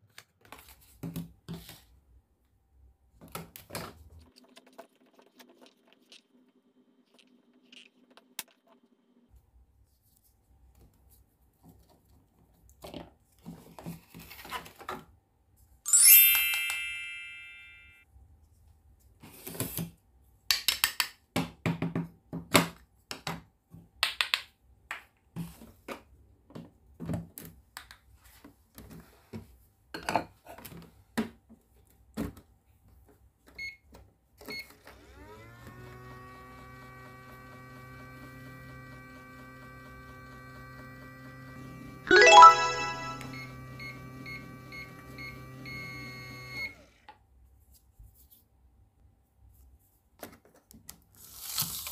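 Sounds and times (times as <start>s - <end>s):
bright chime: 15.9s - 18.0s, 42.1s - 43.5s
toy microwave electric hum: 34.6s - 42.1s, 43.4s - 47.2s
button click: 42.1s - 43.4s.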